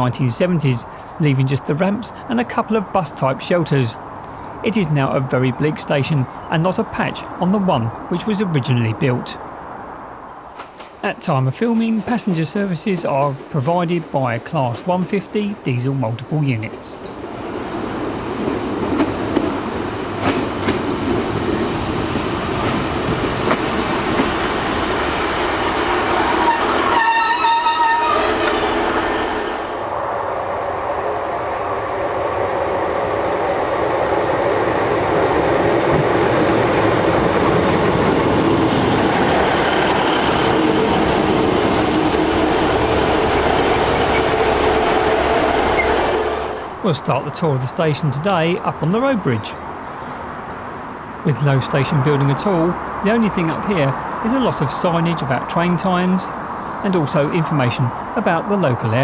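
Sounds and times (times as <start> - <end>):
train diesel engines and wheels: 0.0 - 59.0
train horn: 24.5 - 29.7.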